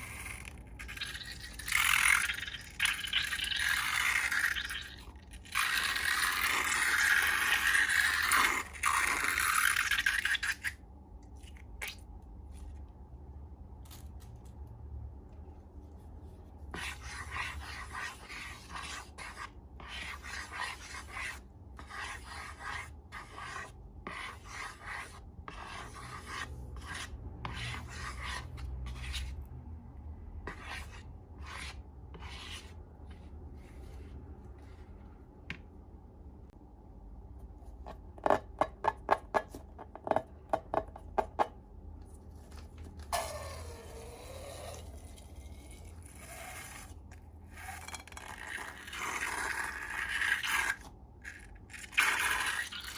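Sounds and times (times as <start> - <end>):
scraping and rubbing: 30.5 - 35.2.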